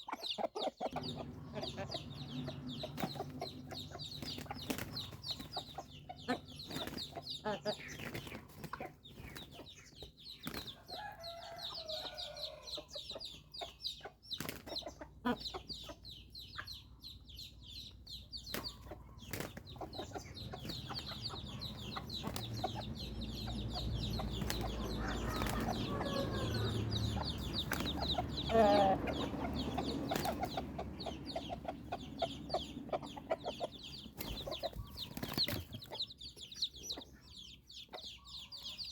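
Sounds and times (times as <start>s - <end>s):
chicks peeping: 0.0s - 38.9s.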